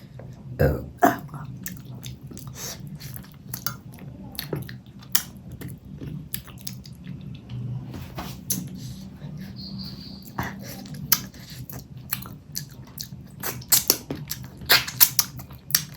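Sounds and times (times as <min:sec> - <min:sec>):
person chewing food: 0:01.4 - 0:07.6, 0:10.2 - 0:15.9.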